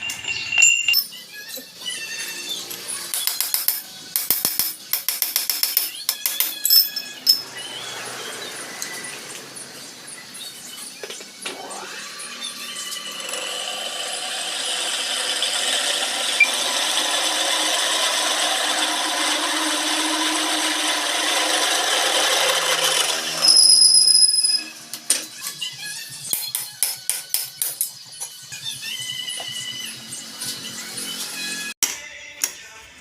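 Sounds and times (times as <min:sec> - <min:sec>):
power tool working metal: 0:11.5 - 0:25.0
high-pitched squeal: 0:21.8 - 0:25.0.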